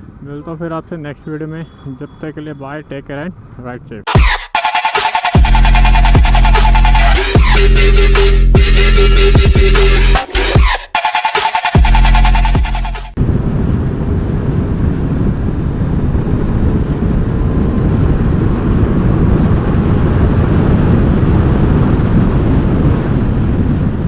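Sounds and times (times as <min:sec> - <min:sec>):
wind buffeting microphone: 0:13.2 - 0:24.0.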